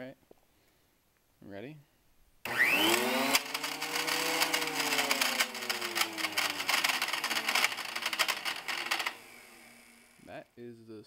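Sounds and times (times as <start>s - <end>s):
planer motor whine: 2.5s - 10.3s
rapid metallic clatter: 3.3s - 9.2s.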